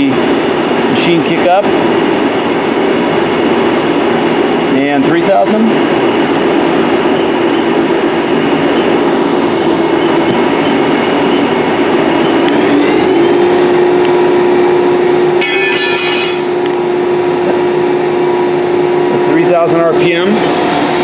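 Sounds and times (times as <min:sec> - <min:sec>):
lathe spindle whine: 0:00.0 - 0:21.0
high buzz: 0:04.6 - 0:21.0.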